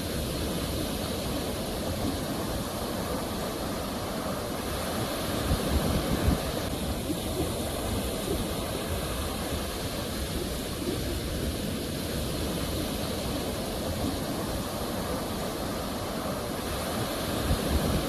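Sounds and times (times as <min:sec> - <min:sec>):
waves washing onto shore: 0:00.0 - 0:18.0.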